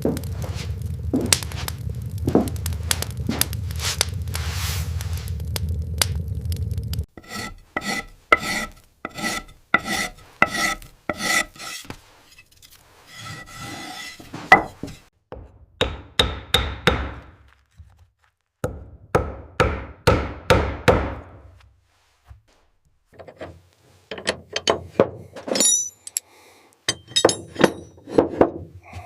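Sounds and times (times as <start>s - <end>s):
steady low noise: 0.0s - 7.1s
hand tool rasping wood: 7.2s - 15.1s.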